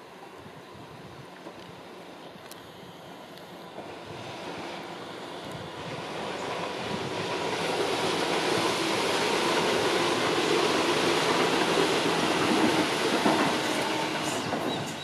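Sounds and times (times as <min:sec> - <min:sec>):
train wheels rumbling on rail: 0:03.7 - 0:15.0.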